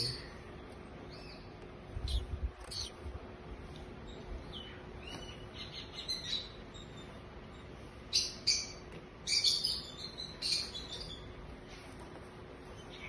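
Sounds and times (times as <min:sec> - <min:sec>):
bird chirps: 0:01.0 - 0:03.0, 0:04.0 - 0:11.4.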